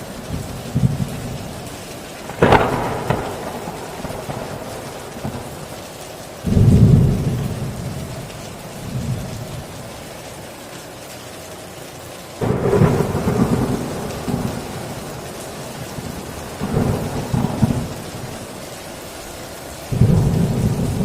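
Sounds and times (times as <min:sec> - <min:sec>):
heavy rain: 0:00.0 - 0:21.0
thunder crack: 0:02.2 - 0:05.7, 0:12.4 - 0:18.5, 0:19.9 - 0:21.0
deep thunder rumble: 0:02.2 - 0:05.8, 0:06.4 - 0:09.7, 0:12.4 - 0:18.6, 0:19.9 - 0:21.0.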